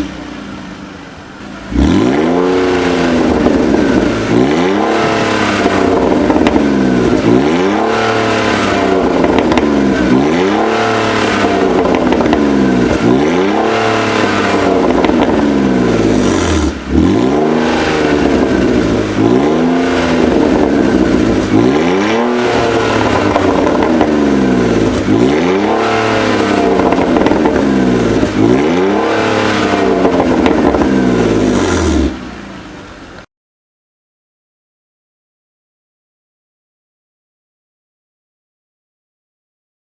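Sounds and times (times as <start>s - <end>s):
car engine revving: 0.0s - 33.2s.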